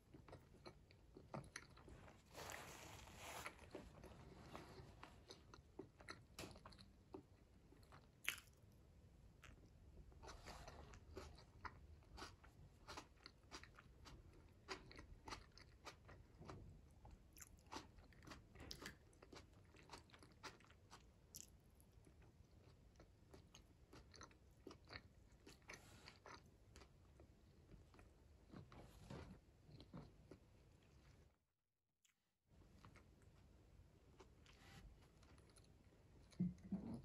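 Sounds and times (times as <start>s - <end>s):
chewing and biting shrimp: 5.5s - 8.6s, 11.0s - 16.6s, 17.4s - 26.9s.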